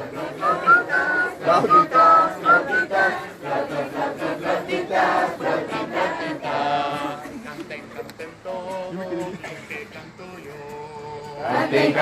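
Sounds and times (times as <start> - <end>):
group chanting together: 0.0 - 7.5, 8.4 - 12.0
voices imitating flutes: 0.3 - 3.2.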